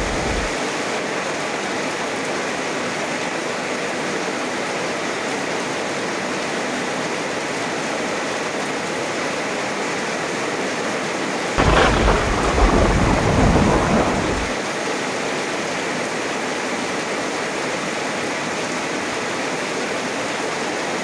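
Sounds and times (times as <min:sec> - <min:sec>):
thunder clap rumbling: 0:00.0 - 0:00.6, 0:11.6 - 0:14.6
heavy rain: 0:00.0 - 0:00.9, 0:11.6 - 0:14.6.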